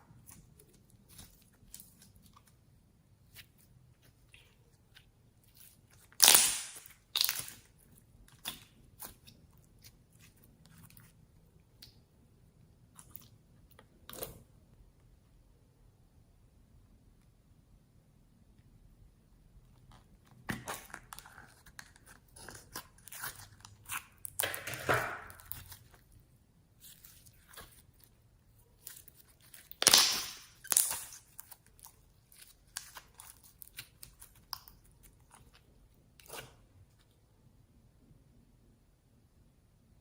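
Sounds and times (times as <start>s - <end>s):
slime crunching and popping by hand: 3.2s - 11.1s, 20.3s - 26.1s, 26.8s - 36.6s.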